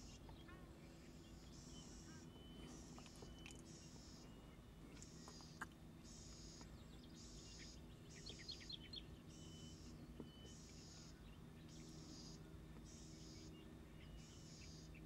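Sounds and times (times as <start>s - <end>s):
small chirps: 2.6s - 4.2s.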